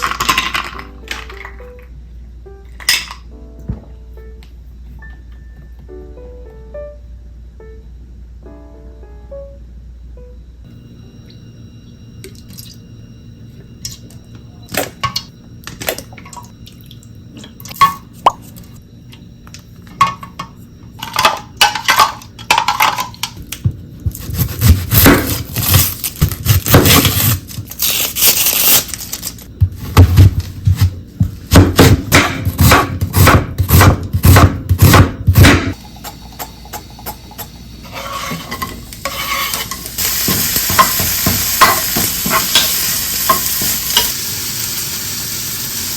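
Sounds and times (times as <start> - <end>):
utensils and dishes clinking: 0.0 - 1.8, 19.9 - 23.6, 35.8 - 44.2
food sizzling in a pan: 35.7 - 45.9.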